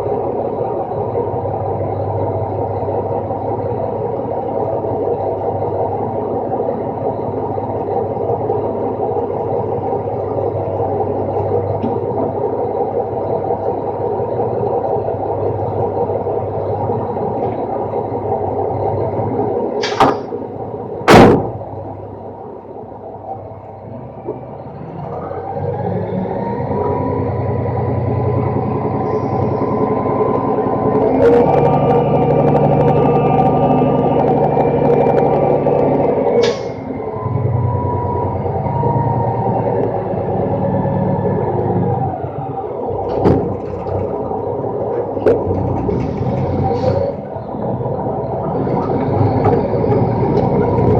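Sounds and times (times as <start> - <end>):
truck engine drone: 0.0 - 50.9
sharp bangs: 21.1 - 21.7.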